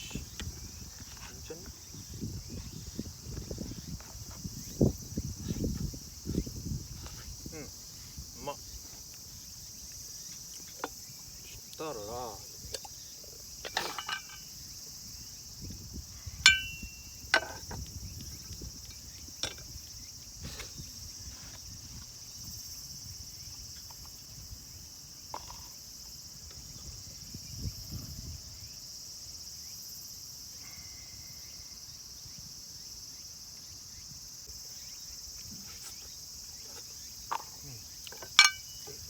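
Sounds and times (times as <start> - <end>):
insects chirring: 0.0 - 39.0
metallic clink: 13.7 - 14.5, 16.4 - 17.6, 38.1 - 39.0.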